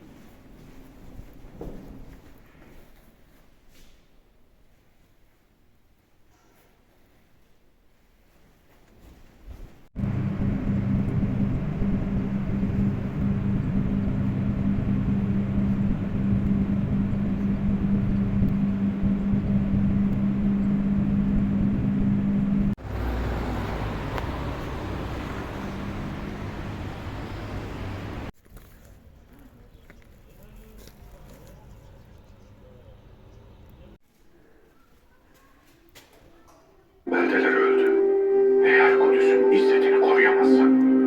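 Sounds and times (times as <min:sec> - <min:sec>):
vehicle running hum: 0:10.0 - 0:28.3
quiet traffic noise: 0:22.7 - 0:37.6.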